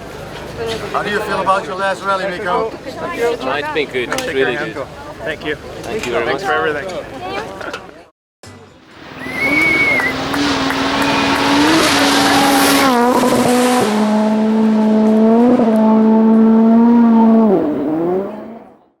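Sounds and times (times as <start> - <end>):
rally car engine revving hard: 9.0 - 19.0
brief high squeal: 9.2 - 10.2.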